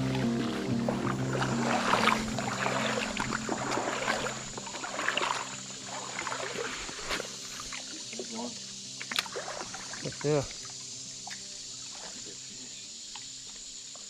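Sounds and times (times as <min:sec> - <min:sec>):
background music: 0:00.0 - 0:07.6
legs wading through water: 0:00.0 - 0:13.4.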